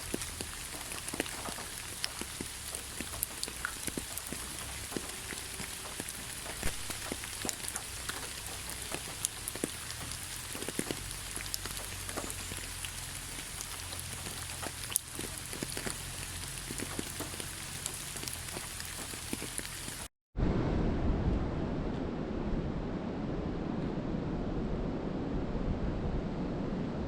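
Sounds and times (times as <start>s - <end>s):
rain hissing: 0.0s - 20.1s
raindrops ticking on a surface: 0.0s - 20.1s.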